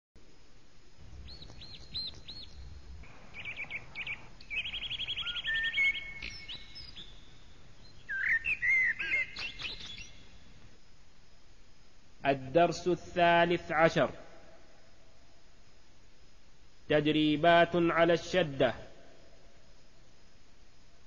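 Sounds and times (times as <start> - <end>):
songbird singing: 1.0 - 10.7.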